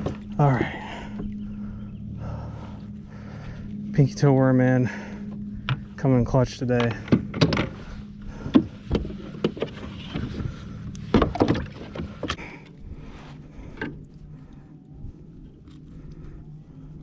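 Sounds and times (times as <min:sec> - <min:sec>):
knocks and clicks of gear: 0:00.0 - 0:01.7, 0:05.3 - 0:12.8, 0:13.7 - 0:14.1
steady low hum: 0:00.0 - 0:17.0.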